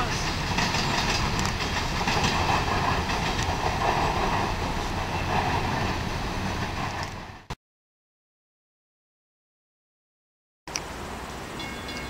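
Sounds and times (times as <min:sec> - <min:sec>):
freight train wheels rumbling: 0:00.0 - 0:07.5
rail joint clicks: 0:00.0 - 0:07.5.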